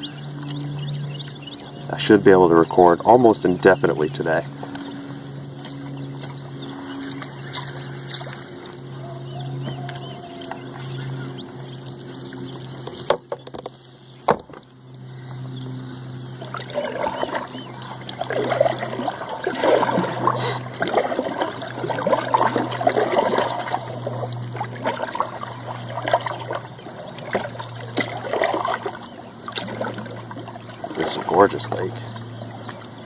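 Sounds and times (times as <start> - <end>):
boat motor hum: 0.0 - 33.0
water splashing and trickling: 6.9 - 14.8, 16.2 - 33.0.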